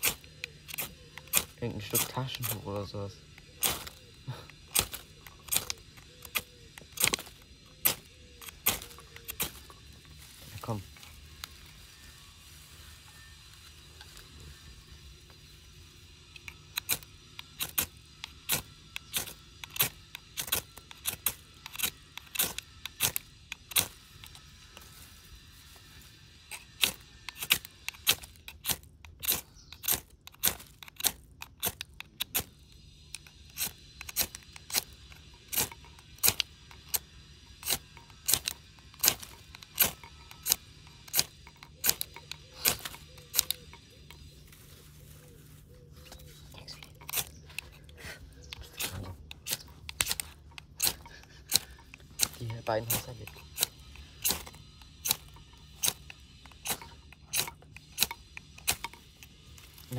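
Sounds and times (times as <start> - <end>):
fire starter striking: 0.0 - 10.0, 16.3 - 24.9, 26.5 - 44.2, 48.5 - 59.9.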